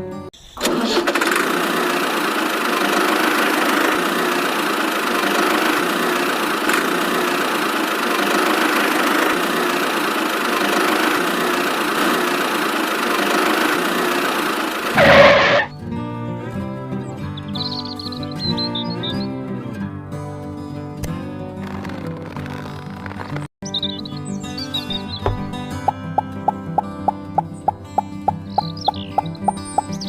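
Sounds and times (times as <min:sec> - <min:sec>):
motor running steadily: 0:01.4 - 0:15.1.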